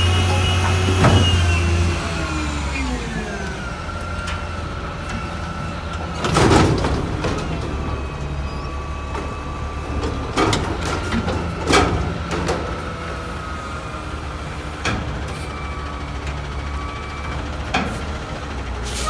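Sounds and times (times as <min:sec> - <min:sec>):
hydraulic whine: 0:00.0 - 0:04.0
garbage truck engine running: 0:00.0 - 0:19.0.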